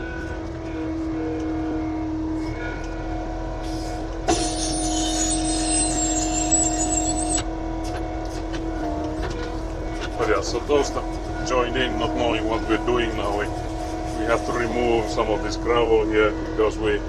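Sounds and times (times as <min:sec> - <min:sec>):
diesel engine running: 0:00.0 - 0:17.0
high whine: 0:03.8 - 0:07.6.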